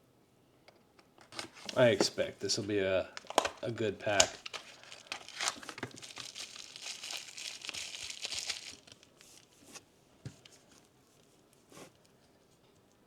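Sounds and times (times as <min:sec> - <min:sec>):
plastic packaging crinkling and tearing: 0:03.2 - 0:09.6.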